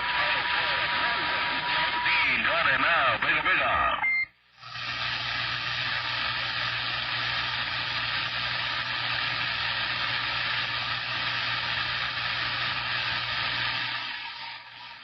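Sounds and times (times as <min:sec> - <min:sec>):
radio static hiss: 0:00.0 - 0:04.1, 0:05.4 - 0:09.4.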